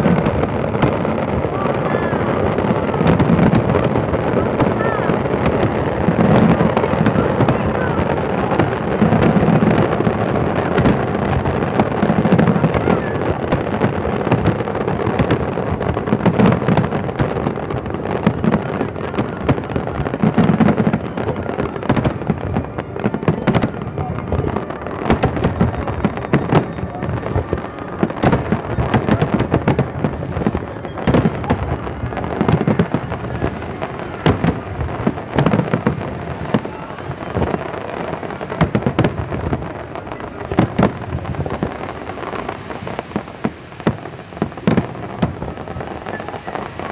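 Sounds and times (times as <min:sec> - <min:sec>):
firework cracks and crackling pops: 0:00.0 - 0:46.9.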